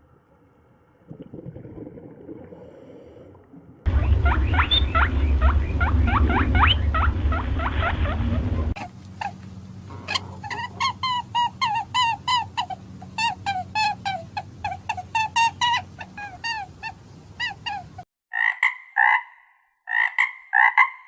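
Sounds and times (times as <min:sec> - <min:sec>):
loud low rumble: 0:03.8 - 0:10.8.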